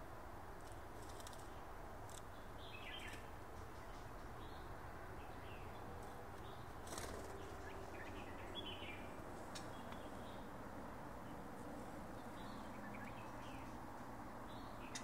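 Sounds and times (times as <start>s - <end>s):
steady background hiss: 0.0s - 15.0s
birds chirping: 0.7s - 15.0s.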